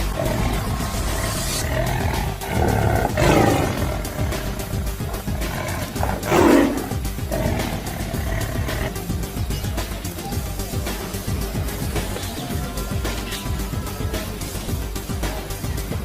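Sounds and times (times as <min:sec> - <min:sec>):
big cat roaring: 0:00.0 - 0:09.0
background music: 0:00.0 - 0:16.0.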